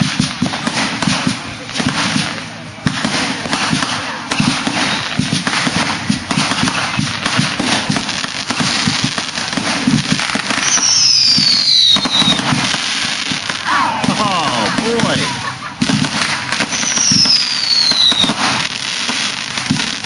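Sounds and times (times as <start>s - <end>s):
fireworks cracking and banging: 0.0s - 20.0s
firework whistle falling in pitch: 10.6s - 12.6s, 16.7s - 18.5s.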